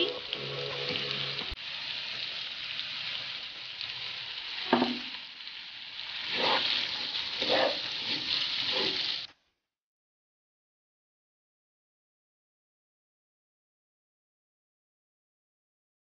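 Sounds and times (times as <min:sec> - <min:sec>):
vegetables sizzling in a pan: 0:00.0 - 0:09.3
wooden spatula stirring: 0:06.3 - 0:09.3.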